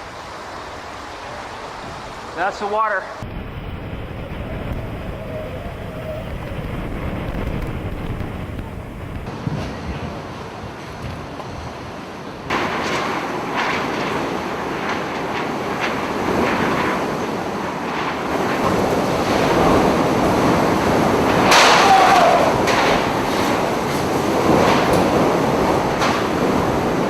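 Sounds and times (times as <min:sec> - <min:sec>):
hurricane wind: 0:00.0 - 0:27.0
surf rushing: 0:11.8 - 0:27.0.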